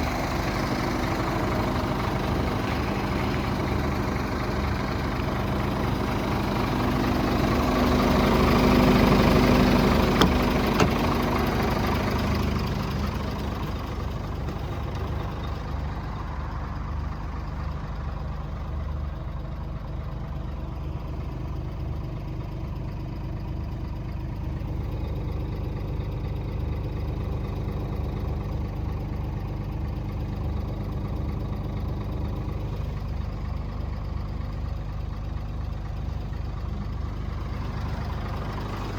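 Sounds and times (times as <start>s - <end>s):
diesel truck engine idling: 0.0s - 38.9s
clicks: 10.2s - 11.1s.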